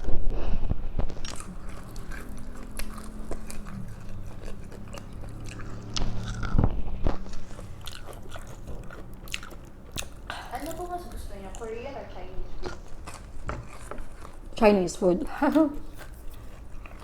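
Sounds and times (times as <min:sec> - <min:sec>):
person chewing food: 0:00.0 - 0:11.8, 0:12.6 - 0:14.6, 0:15.5 - 0:17.0
faint low hum: 0:00.0 - 0:17.0.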